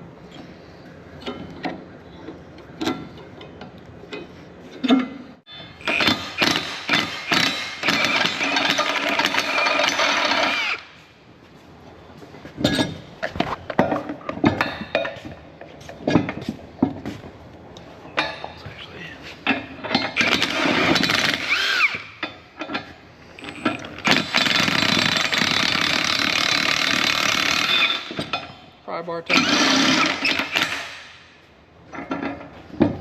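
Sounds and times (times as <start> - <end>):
power tool hammering on steel: 5.8 - 10.8
metal clanks and knocks: 12.4 - 17.2, 19.4 - 21.2, 28.0 - 28.6, 31.8 - 33.0.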